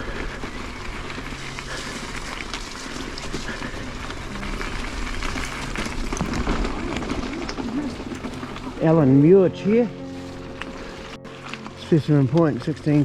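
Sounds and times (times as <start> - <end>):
bike tyres crunching on gravel: 0.0 - 13.0
stones clicking and knocking: 4.6 - 8.8.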